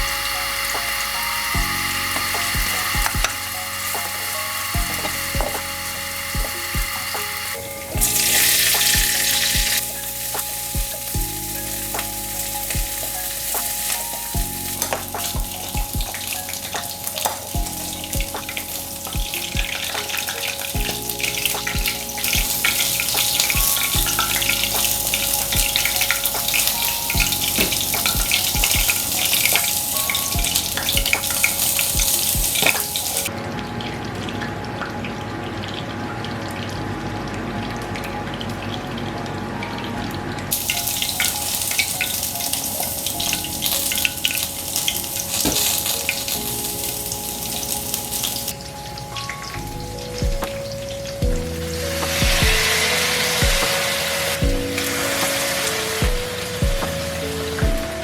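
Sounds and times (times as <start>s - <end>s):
food sizzling in oil: 0.0s - 33.3s, 40.5s - 48.5s
soft background music: 0.0s - 58.0s.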